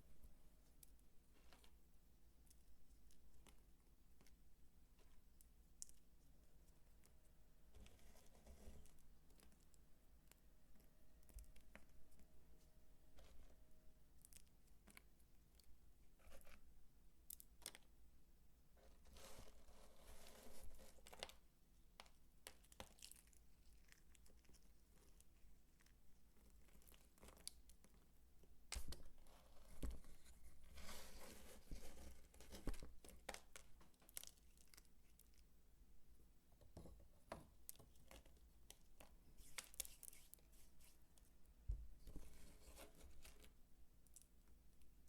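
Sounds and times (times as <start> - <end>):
dry soap crackling: 0.6 - 35.8, 37.4 - 45.0.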